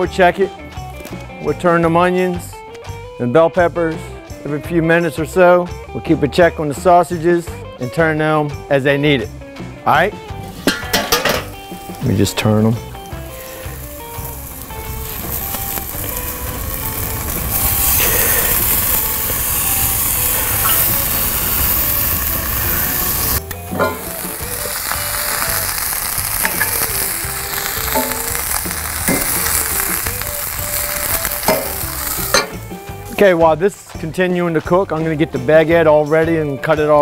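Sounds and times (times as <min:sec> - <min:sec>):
vegetables sizzling in skillet: 0:10.3 - 0:33.2
metal tongs clicking on pan: 0:26.4 - 0:26.9, 0:27.9 - 0:28.5, 0:31.4 - 0:32.6.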